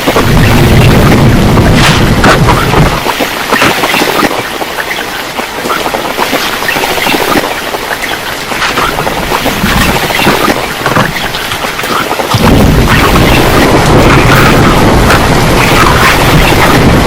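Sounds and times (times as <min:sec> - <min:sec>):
heavy rain falling: 0:00.0 - 0:17.0
low rumble of wind or thunder: 0:00.0 - 0:17.0.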